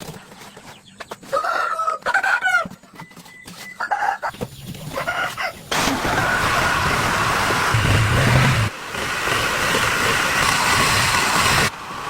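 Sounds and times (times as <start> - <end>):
chickens clucking: 0.4 - 7.4.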